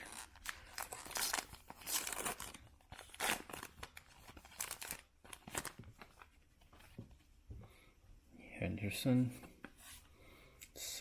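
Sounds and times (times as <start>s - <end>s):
wrapper being torn and crinkled: 0.0s - 5.8s.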